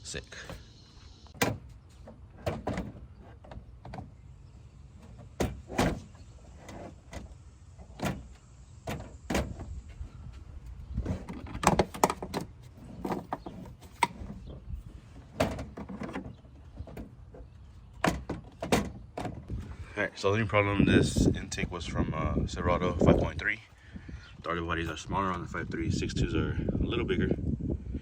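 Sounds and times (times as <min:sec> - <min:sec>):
plastic parts knocking and scraping: 0:11.0 - 0:19.5.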